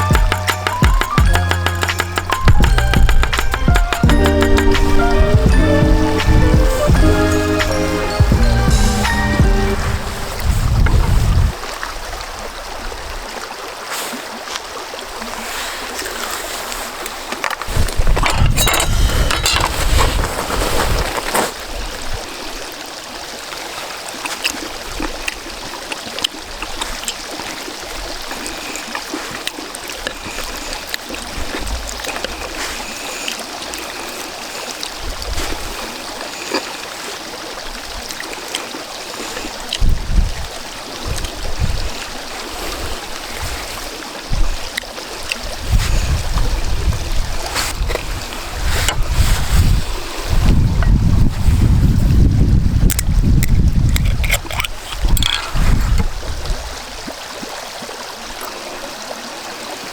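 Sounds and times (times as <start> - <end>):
wind gusts on microphone: 2.5 - 13.3, 17.7 - 22.5, 39.6 - 57.1
strong wind rushing: 8.0 - 11.6, 17.7 - 21.3, 45.6 - 54.3.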